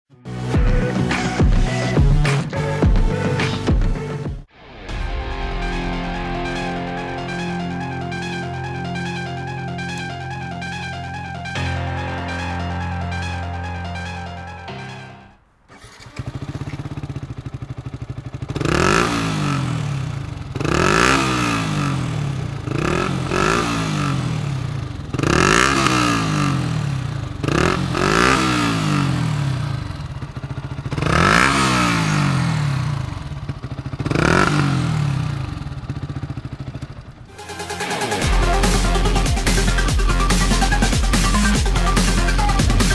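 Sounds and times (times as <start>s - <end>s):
motorcycle engine idling and revving: 15.7s - 42.9s.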